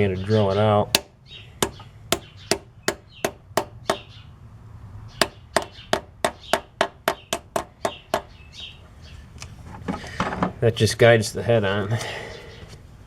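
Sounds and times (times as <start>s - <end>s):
hammer tapping metal: 1.0s - 4.1s, 5.2s - 8.3s.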